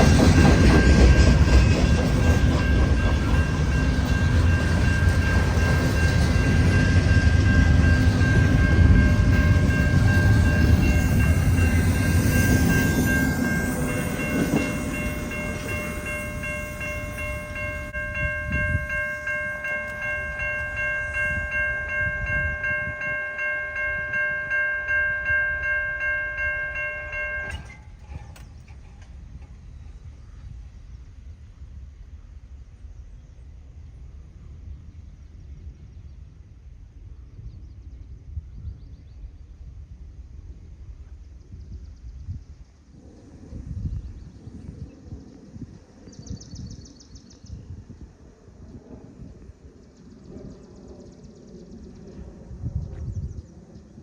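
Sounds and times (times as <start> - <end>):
train wheels clattering: 0.0 - 21.6
high ringing tone: 0.0 - 27.9.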